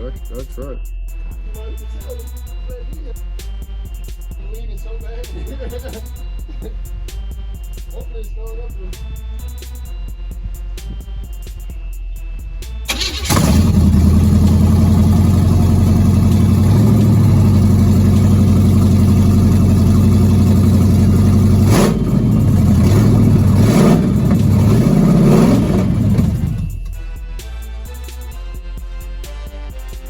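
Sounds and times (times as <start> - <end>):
car engine running and revving: 12.9 - 27.0.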